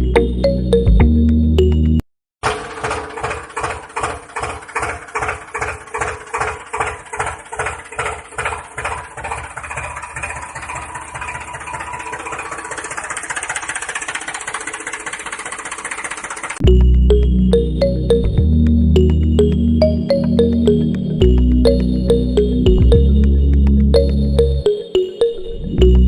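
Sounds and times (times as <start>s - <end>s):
engine starting and idling: 2.4s - 16.9s.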